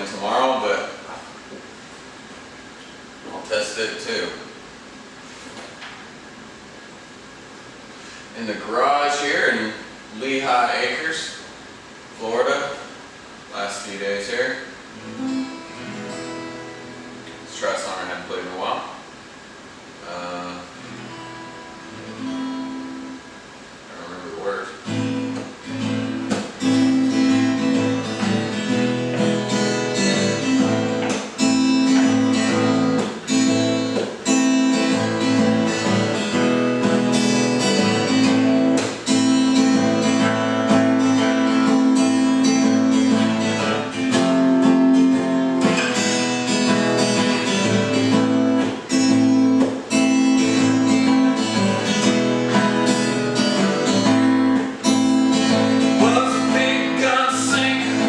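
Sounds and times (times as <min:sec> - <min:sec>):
acoustic guitar strumming: 0:14.8 - 0:18.7, 0:20.0 - 0:23.7, 0:24.3 - 0:58.0.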